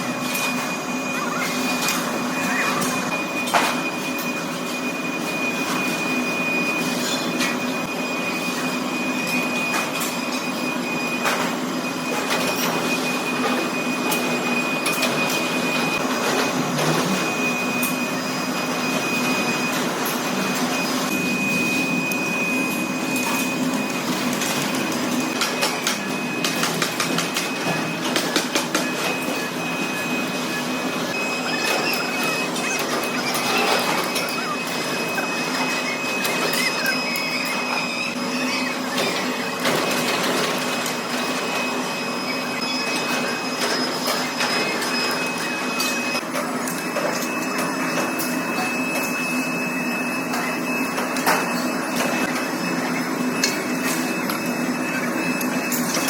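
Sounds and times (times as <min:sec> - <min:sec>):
machinery humming: 0:00.0 - 0:56.0.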